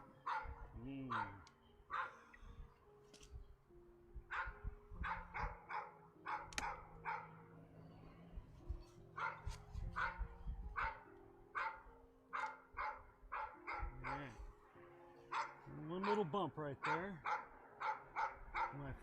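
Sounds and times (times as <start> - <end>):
dog barking: 0.2 - 2.6, 4.3 - 7.6, 9.2 - 14.5, 15.3 - 19.0.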